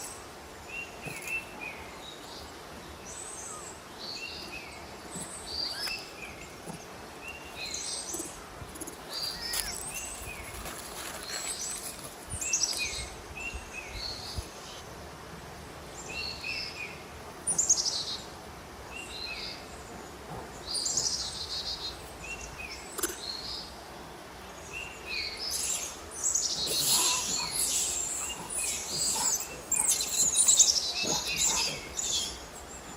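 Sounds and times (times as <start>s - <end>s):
birds chirping and calling: 3.1s - 14.4s, 24.8s - 32.9s.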